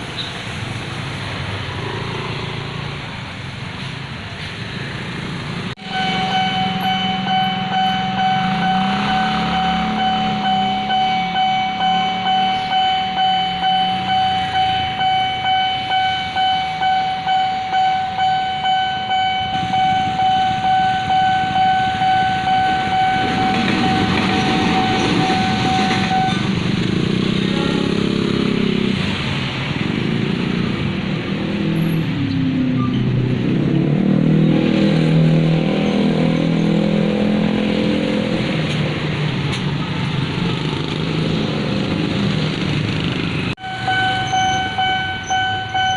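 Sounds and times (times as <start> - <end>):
motorcycles: 0.0 - 45.9
road traffic engines: 0.0 - 45.9
level crossing warning bell: 5.8 - 26.5, 43.6 - 45.9.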